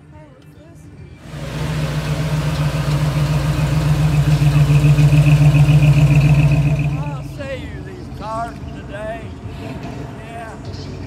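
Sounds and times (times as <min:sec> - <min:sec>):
car engine passing at low revs: 0:01.2 - 0:07.6.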